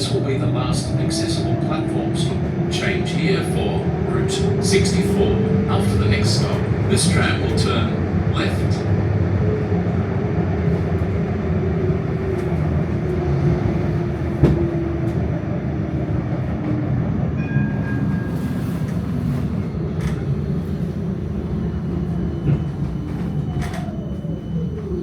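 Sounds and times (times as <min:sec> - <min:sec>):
tram wheels rumbling: 0:00.0 - 0:25.0.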